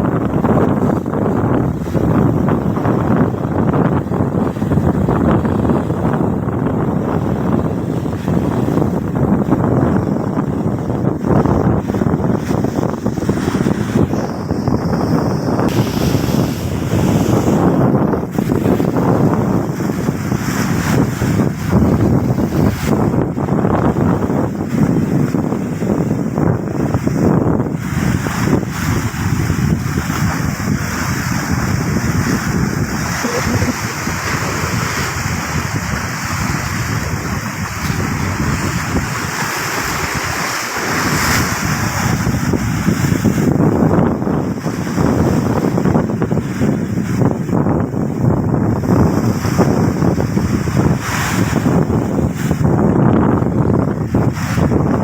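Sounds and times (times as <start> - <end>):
wind buffeting microphone: 0.0 - 55.0
waves surging onto beach: 11.2 - 26.1, 26.8 - 55.0.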